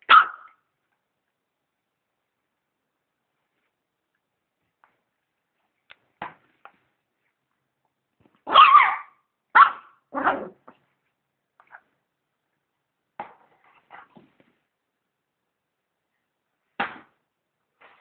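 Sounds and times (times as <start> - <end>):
dog barking: 0.0 - 0.6, 8.5 - 10.6.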